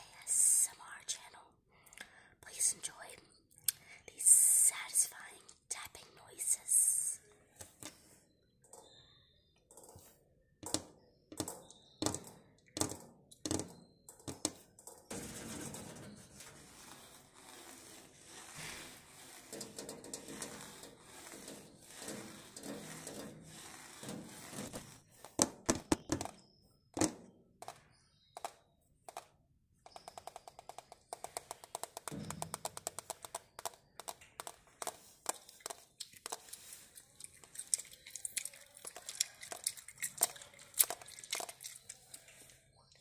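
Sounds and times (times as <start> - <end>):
tapping and knocking on objects: 10.6 - 15.9, 25.3 - 26.4, 27.0 - 29.3, 29.9 - 35.8.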